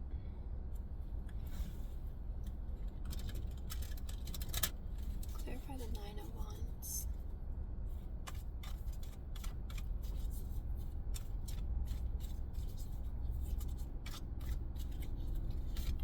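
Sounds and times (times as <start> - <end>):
steady low hum: 0.0 - 16.0
cards being shuffled: 8.3 - 16.0.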